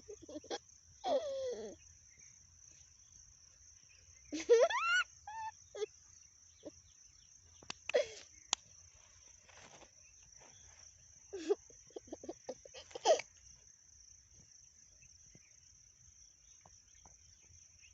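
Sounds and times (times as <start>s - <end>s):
child giggling: 0.0s - 1.8s, 4.3s - 5.9s, 7.9s - 8.3s, 11.3s - 13.4s
crickets chirring: 0.0s - 17.9s.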